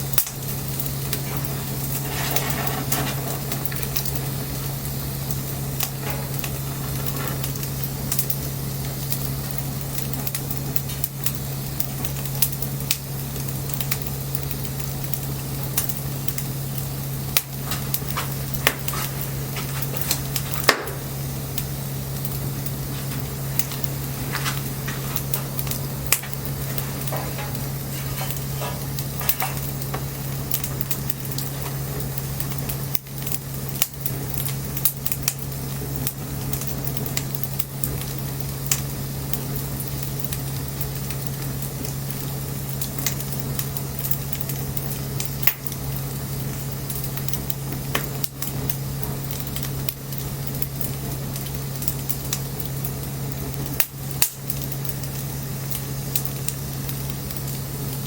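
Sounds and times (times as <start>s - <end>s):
bonfire crackling and popping: 0.0s - 58.0s
low hum: 15.1s - 32.9s.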